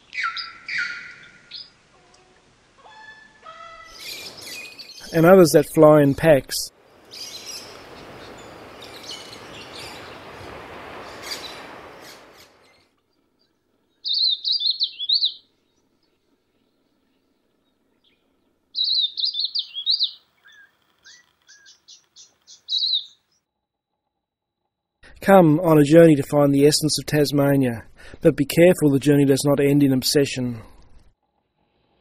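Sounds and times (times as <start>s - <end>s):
small birds chirping: 0.0s - 5.3s, 6.8s - 23.4s.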